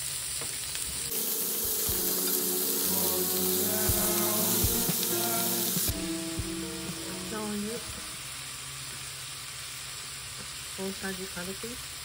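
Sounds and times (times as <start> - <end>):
vegetables sizzling in a frying pan: 0.0 - 12.0
background music with melody: 1.0 - 8.3.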